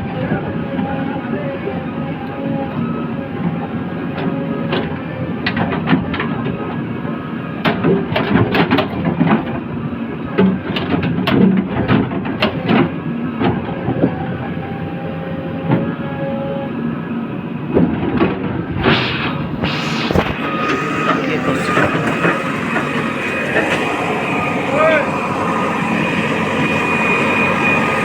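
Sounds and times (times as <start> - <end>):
diesel engine running: 19.2 - 28.0.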